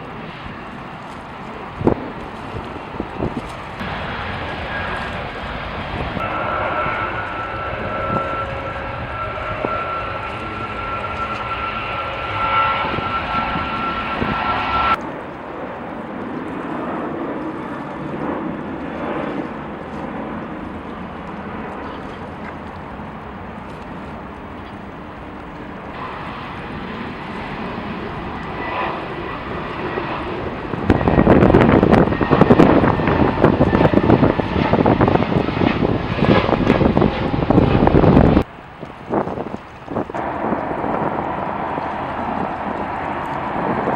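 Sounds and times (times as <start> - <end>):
jet engines whining: 0.0 - 15.0, 25.0 - 38.5, 39.9 - 43.9
distant aircraft engine noise: 0.0 - 43.9
wind buffeting microphone: 0.0 - 43.9.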